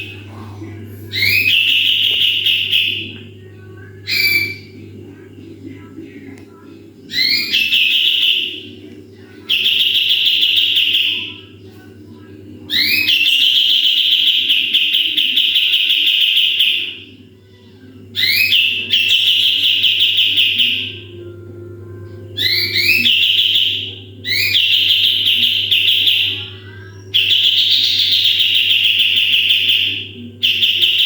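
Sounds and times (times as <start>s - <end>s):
steady low hum: 0.0s - 31.0s
bird singing trilled notes: 1.1s - 3.2s, 4.0s - 4.8s, 7.1s - 8.8s, 9.4s - 11.5s, 12.6s - 17.1s, 18.2s - 21.4s, 22.1s - 31.0s.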